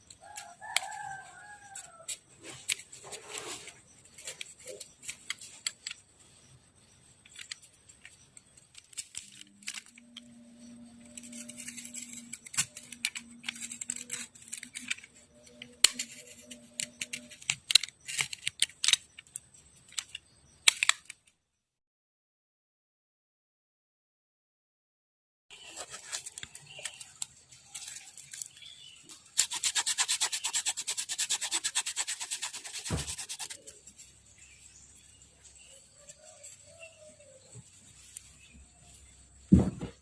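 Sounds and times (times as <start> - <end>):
clicks and scraping of handwork: 0.0 - 21.3, 25.5 - 34.4.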